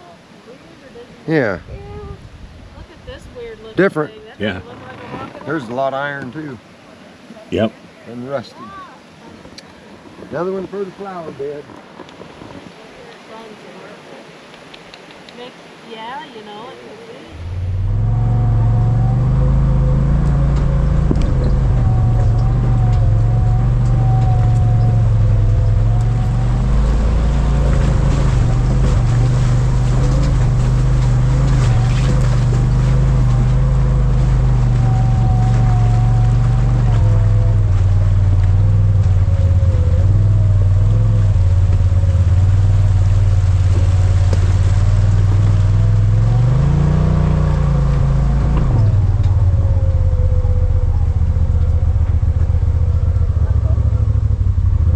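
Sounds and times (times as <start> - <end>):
vehicle engine running: 17.3 - 54.9
wavering whine: 17.3 - 54.9.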